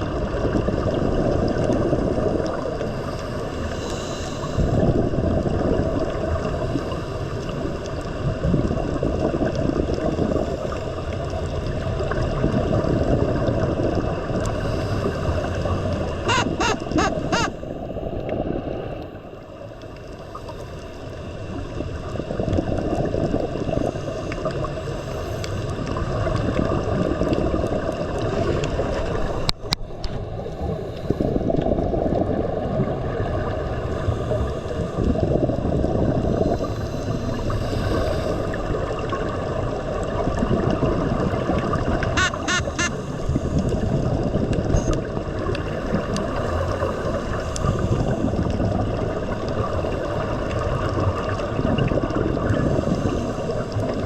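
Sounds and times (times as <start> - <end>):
rushing water: 0.0 - 54.0
wind noise on microphone: 4.5 - 6.0.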